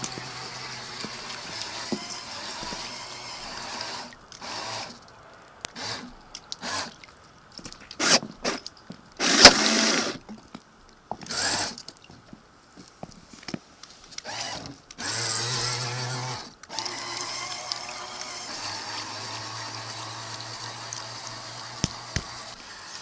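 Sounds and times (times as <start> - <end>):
small electric motor whirring: 0.0 - 5.0, 5.7 - 7.0, 9.2 - 10.2, 11.3 - 11.8, 14.2 - 23.0.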